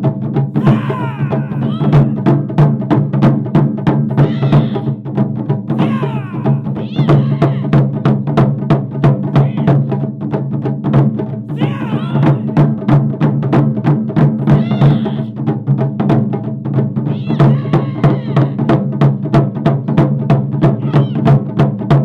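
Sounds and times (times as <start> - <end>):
people calling out: 0.6 - 2.3, 4.1 - 5.0, 5.7 - 7.9, 9.3 - 9.9, 11.5 - 12.7, 14.4 - 15.4, 17.0 - 18.7, 20.8 - 21.4
drum ensemble playing: 0.6 - 22.0.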